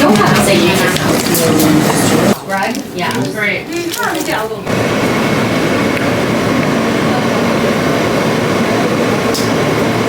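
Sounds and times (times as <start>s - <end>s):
subway train running on track: 4.7s - 10.0s.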